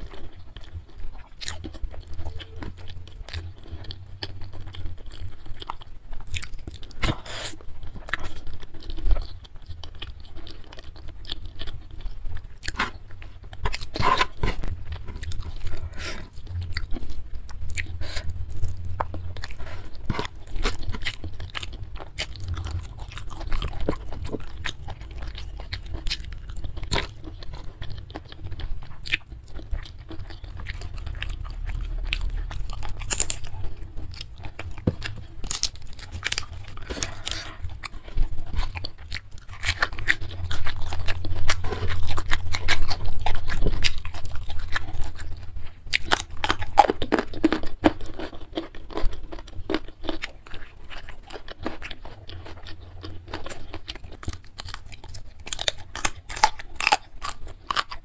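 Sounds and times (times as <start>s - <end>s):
wet chewing and crunching: 0.0s - 58.0s.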